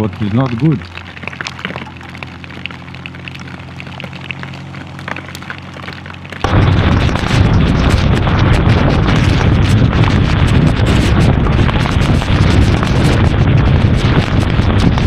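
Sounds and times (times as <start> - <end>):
hail ticking: 0.0 - 15.0
motorcycle engine running: 1.3 - 15.0
wind rushing on microphone: 6.4 - 15.0.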